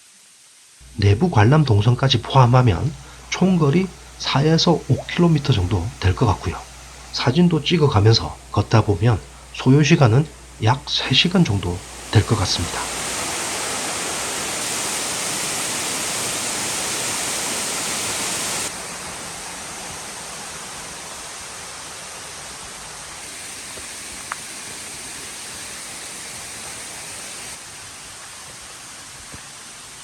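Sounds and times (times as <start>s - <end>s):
mountain stream flowing: 0.0s - 30.0s.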